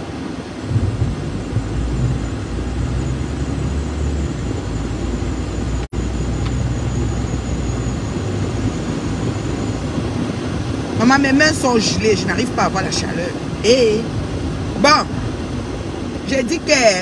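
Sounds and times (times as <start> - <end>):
rush of air: 0.0 - 5.4
car engine idling: 0.0 - 16.0.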